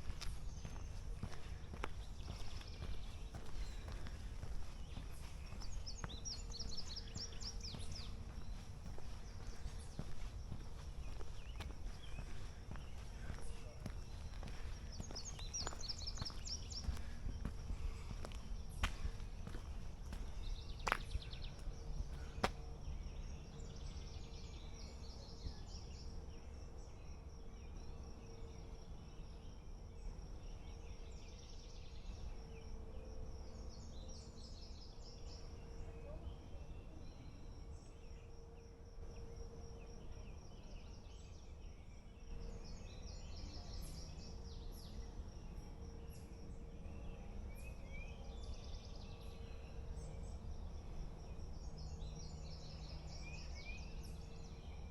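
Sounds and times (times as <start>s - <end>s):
birds chirping and trilling: 0.0s - 25.9s
faint steady hum: 0.0s - 54.9s.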